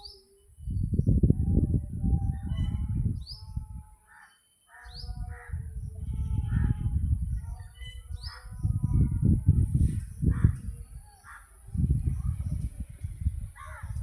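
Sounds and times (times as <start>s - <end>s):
bird chirping: 0.0s - 1.2s, 7.3s - 9.0s.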